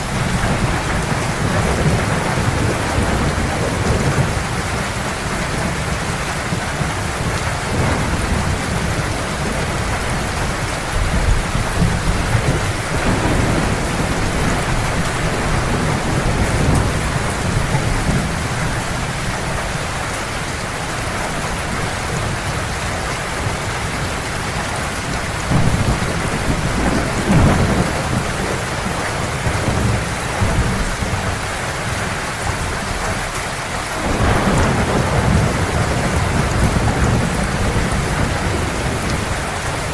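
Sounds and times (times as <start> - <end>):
heavy rain falling: 0.0 - 39.9
thunder rumbling: 0.0 - 39.9.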